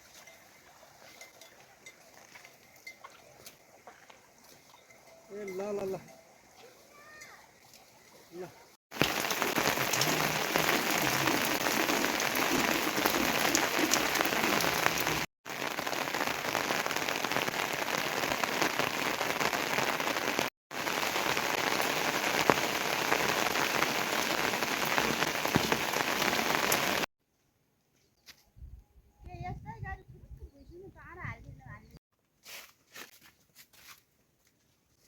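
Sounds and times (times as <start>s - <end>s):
heavy rain falling: 8.9s - 27.1s
raindrops pattering on surfaces: 8.9s - 27.1s.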